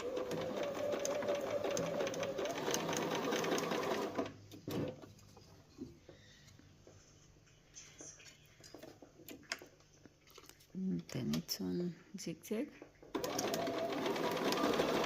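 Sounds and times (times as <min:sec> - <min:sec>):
sewing machine stitching: 0:00.0 - 0:05.0, 0:13.1 - 0:15.0.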